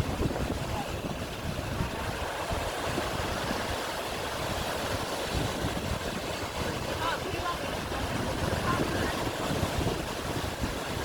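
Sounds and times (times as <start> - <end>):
sea surf on shore: 0.0 - 11.0
wind buffeting microphone: 0.0 - 11.0.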